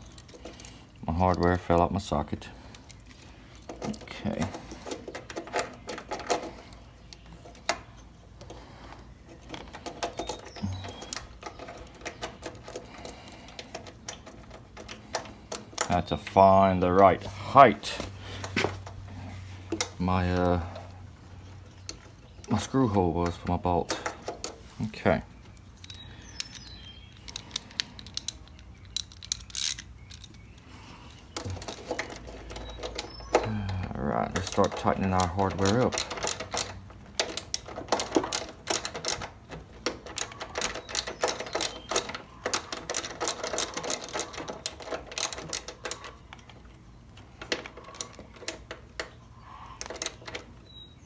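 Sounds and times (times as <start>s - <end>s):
socket wrench and bolts clicking: 25.8s - 30.4s.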